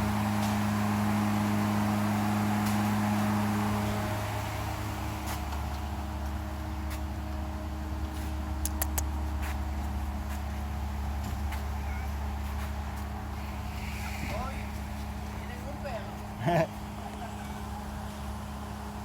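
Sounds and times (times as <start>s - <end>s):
low mechanical hum: 0.0s - 19.0s
sharp clicks: 8.6s - 9.1s.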